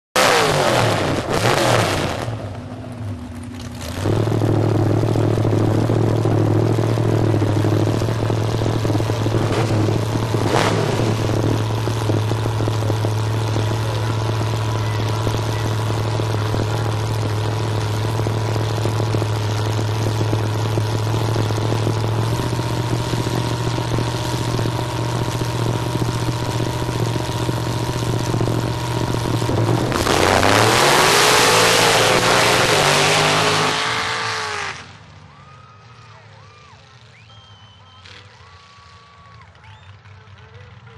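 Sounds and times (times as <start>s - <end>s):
car engine running: 0.2s - 40.9s.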